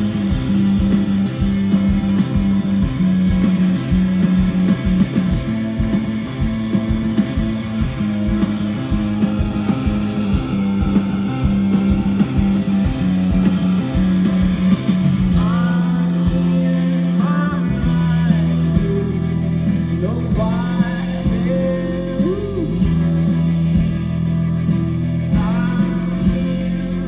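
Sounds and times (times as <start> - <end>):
bass line: 0.0 - 27.0
drums: 0.0 - 27.0
electric guitar: 0.0 - 27.0
person singing: 15.3 - 23.4, 25.3 - 27.0.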